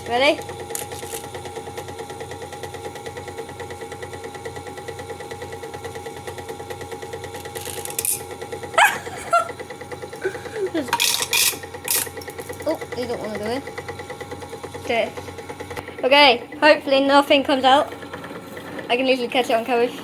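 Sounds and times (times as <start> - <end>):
toy motor pulsing whirr: 7.3 - 19.2.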